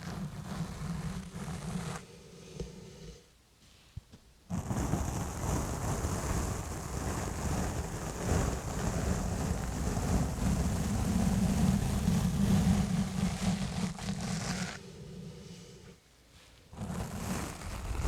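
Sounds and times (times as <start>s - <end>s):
gloves scrubbing on microphone cover: 16.8s - 18.0s.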